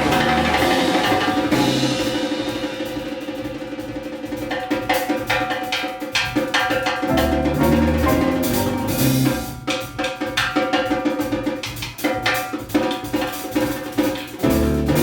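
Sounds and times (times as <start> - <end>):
latin jazz band playing: 0.0 - 3.3, 7.0 - 10.0, 14.4 - 15.0
low held bass notes: 7.1 - 9.6.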